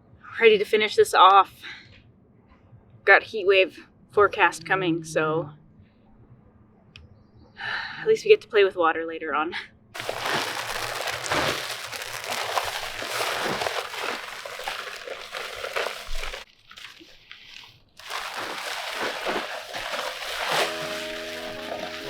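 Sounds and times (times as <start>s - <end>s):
crunching of concrete mix bags: 10.0s - 17.1s, 18.0s - 22.0s.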